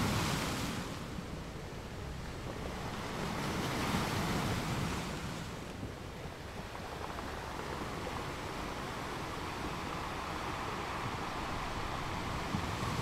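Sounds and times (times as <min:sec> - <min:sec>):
sea waves washing: 0:06.4 - 0:13.0.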